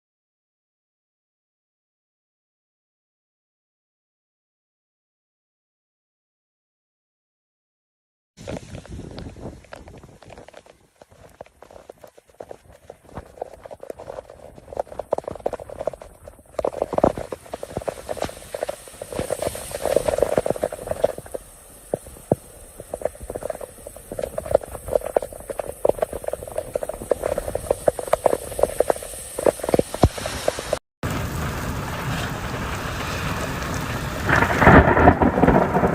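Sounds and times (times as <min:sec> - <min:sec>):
hail and rain on hard surface: 0:09.2 - 0:35.9.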